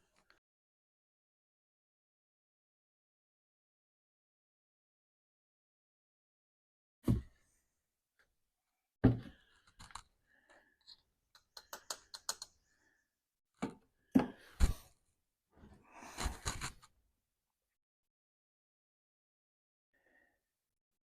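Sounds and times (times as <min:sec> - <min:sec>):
handling clicks taps and knocks: 0:11.3 - 0:12.6.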